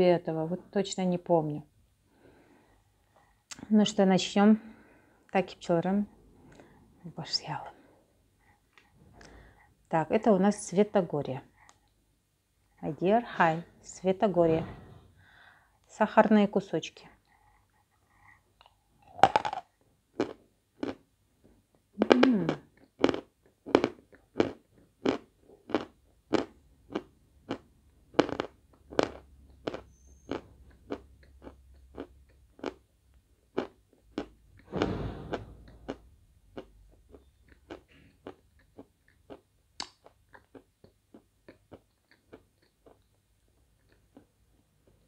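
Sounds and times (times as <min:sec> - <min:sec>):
crunching chewing of chalk: 0:17.2 - 0:21.0, 0:22.7 - 0:34.7, 0:35.7 - 0:45.0.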